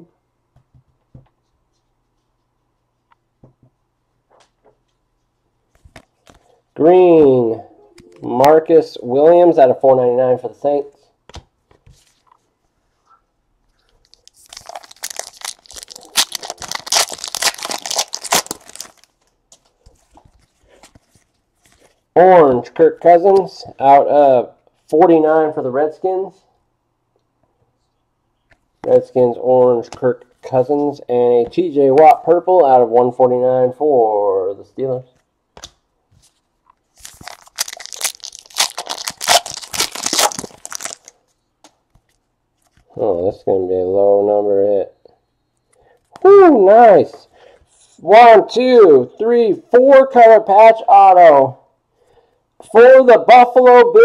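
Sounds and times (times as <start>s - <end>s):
wrapper tearing and crinkling: 14.0s - 19.2s, 36.9s - 41.2s.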